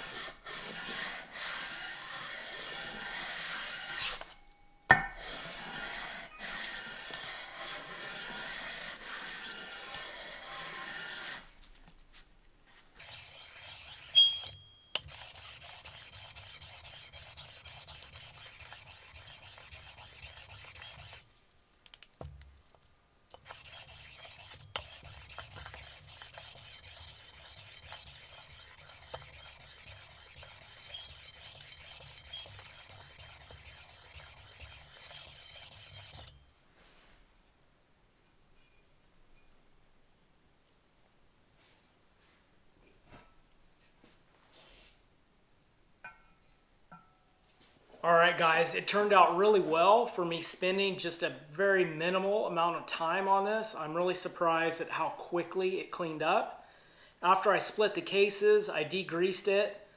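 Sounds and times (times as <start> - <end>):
abrasive scrubbing on metal: 13.0 - 22.7, 23.3 - 36.5.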